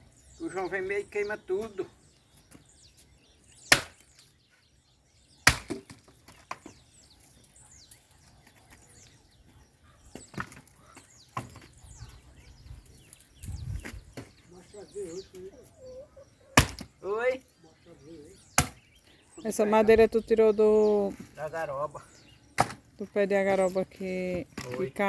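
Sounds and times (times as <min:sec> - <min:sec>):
axe chopping firewood: 0:03.6 - 0:04.2, 0:05.4 - 0:06.8, 0:16.6 - 0:16.9, 0:18.6 - 0:18.9, 0:22.6 - 0:22.8.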